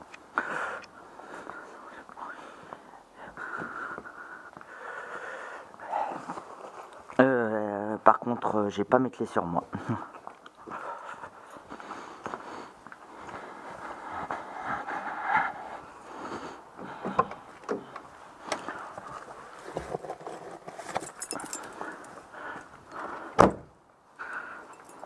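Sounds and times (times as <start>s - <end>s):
handling noises with clicks: 17.1s - 22.2s
keys jingling: 20.8s - 22.2s, 24.6s - 25.0s
door shutting with thud: 23.4s - 23.8s.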